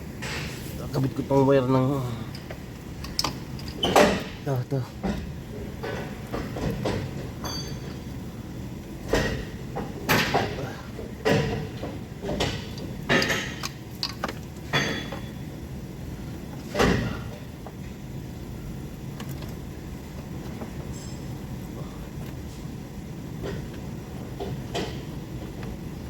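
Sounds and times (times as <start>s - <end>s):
steady low hum: 0.0s - 26.0s
knocks and clanks on metal: 3.2s - 8.1s, 9.0s - 15.4s, 16.7s - 17.8s, 24.4s - 25.6s.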